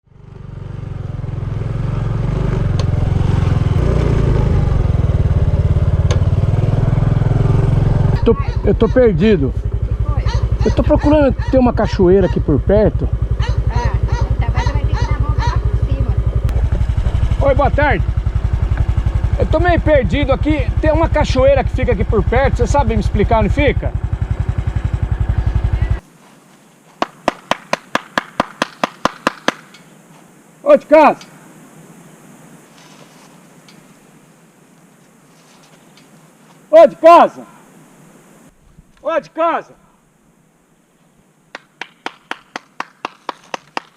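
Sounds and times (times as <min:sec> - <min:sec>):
motorcycle engine running: 0:00.0 - 0:26.0
hand claps: 0:27.0 - 0:29.7, 0:41.5 - 0:43.9.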